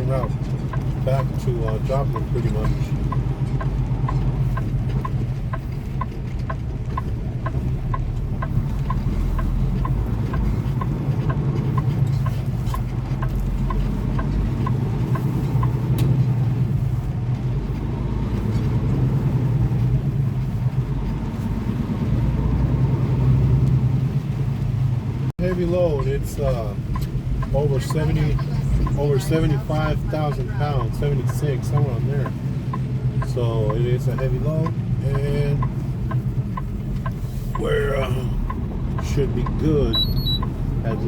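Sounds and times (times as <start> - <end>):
diesel truck engine droning: 0.0 - 41.0
quick regular ticking: 0.3 - 17.6, 30.2 - 41.0.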